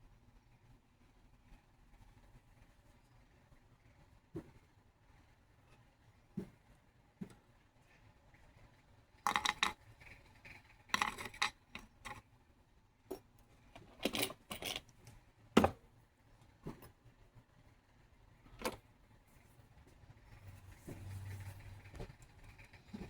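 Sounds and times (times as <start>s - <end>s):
small metal objects clinking: 10.9s - 12.2s, 13.9s - 14.9s.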